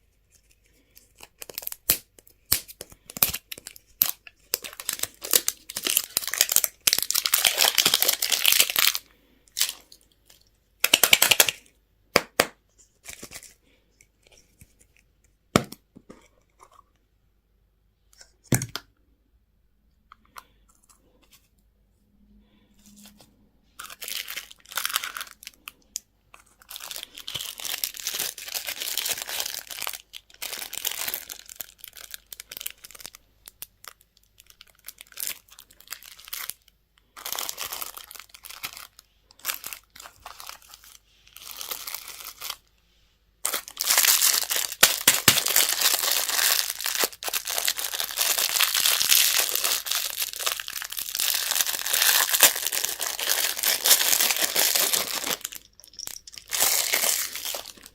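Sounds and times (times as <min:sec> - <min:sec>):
plastic wrapper crinkling: 0:00.3 - 0:11.7, 0:23.8 - 0:42.7, 0:43.4 - 0:57.9.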